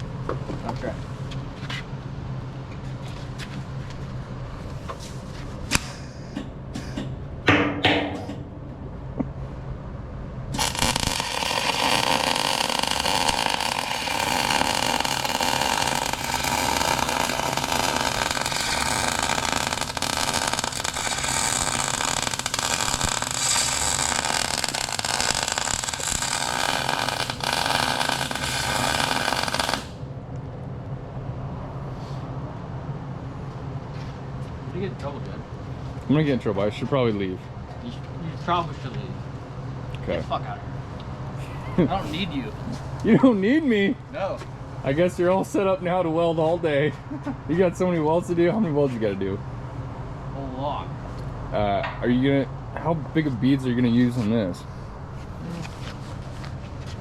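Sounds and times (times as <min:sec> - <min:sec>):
arc welding hiss: 0:10.5 - 0:30.0.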